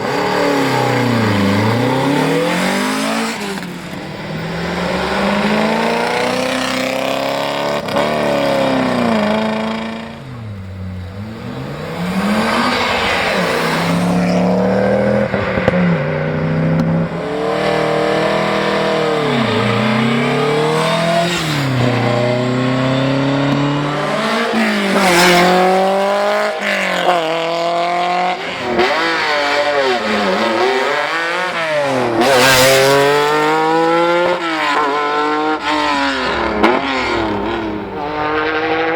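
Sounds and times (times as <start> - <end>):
rally car engines revving: 0.0 - 38.9.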